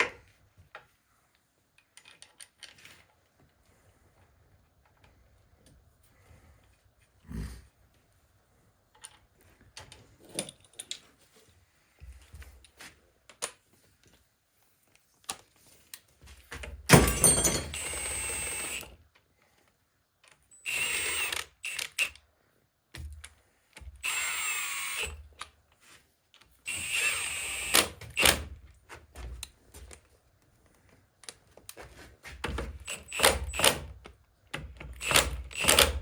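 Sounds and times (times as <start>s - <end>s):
power drill running bolts: 17.6s - 19.0s, 20.6s - 22.2s, 24.0s - 25.2s, 26.6s - 28.5s, 32.8s - 33.9s, 34.9s - 36.0s.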